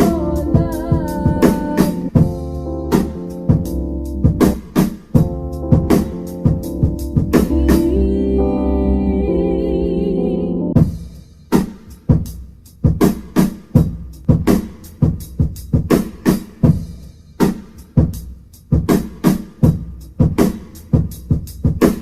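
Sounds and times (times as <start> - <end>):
sustained keyboard chord: 0.0 - 4.6, 5.2 - 10.8
drum kit beat: 0.0 - 8.6, 10.7 - 22.0.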